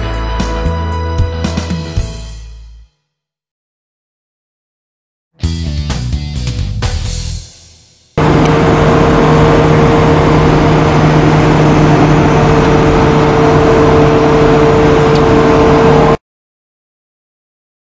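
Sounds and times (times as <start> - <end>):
car engine humming: 8.2 - 16.2.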